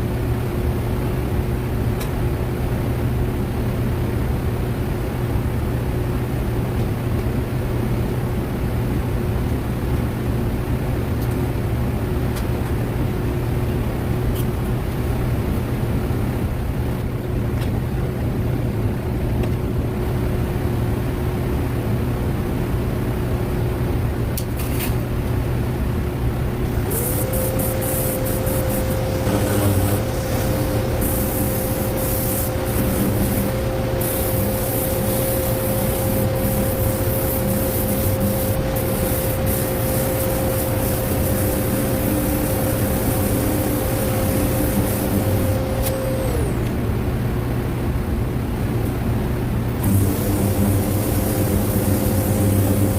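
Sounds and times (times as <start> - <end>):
machine drone: 26.5 - 46.8, 49.8 - 52.9
strong hiss: 26.6 - 46.6, 49.8 - 52.9
motor whining: 26.6 - 46.8, 49.8 - 52.9.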